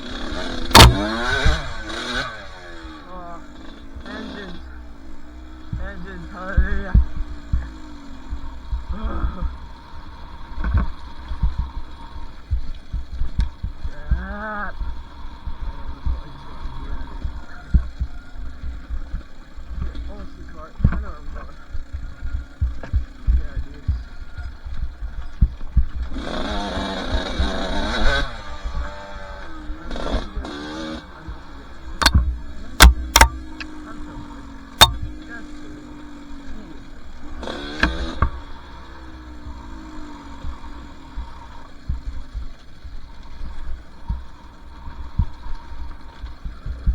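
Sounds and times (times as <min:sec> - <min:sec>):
dirt bike engine running: 0:00.0 - 0:46.9
sharp knocks: 0:00.7 - 0:01.6, 0:32.0 - 0:33.8, 0:34.8 - 0:35.2
low thumps on microphone: 0:12.4 - 0:14.3, 0:20.8 - 0:26.2, 0:32.0 - 0:33.7.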